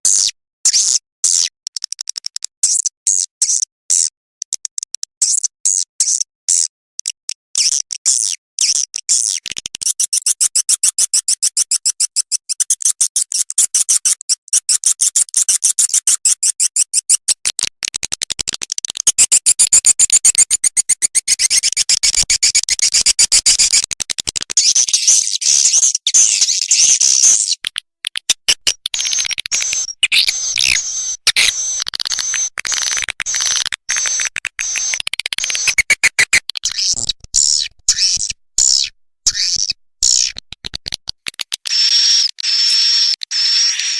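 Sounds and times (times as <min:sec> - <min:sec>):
swiftlets chirping: 0:24.6 - 0:40.3.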